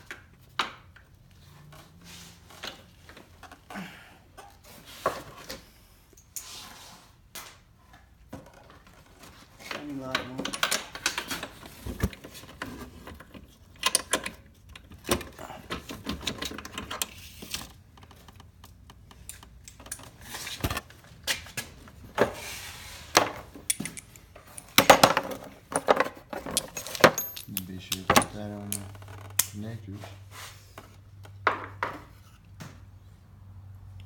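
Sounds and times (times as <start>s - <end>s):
metal tools clinking: 23.6s - 29.5s.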